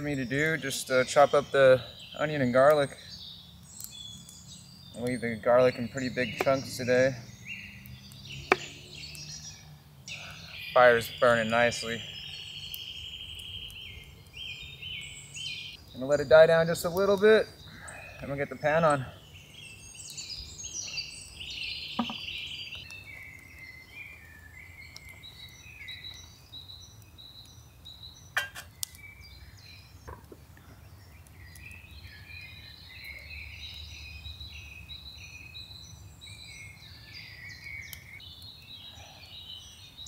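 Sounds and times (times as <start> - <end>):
birds singing: 0.0 - 40.0
sharp clicks or knocks: 22.0 - 22.2.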